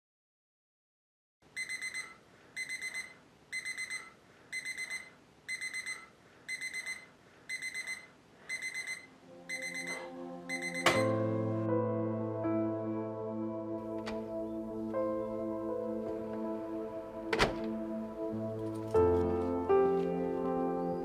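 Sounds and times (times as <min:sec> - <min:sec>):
alarm clock beeping: 0:01.6 - 0:11.2.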